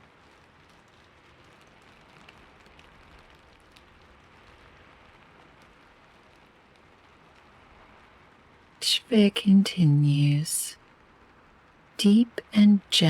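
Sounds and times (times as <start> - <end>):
raindrops pattering: 0.0 - 9.0
faint rain hiss: 0.0 - 13.0.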